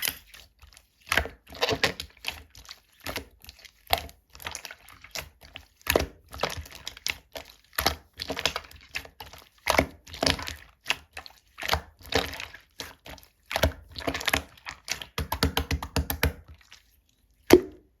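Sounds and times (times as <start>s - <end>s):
slime clicking and popping: 17.5s - 17.9s.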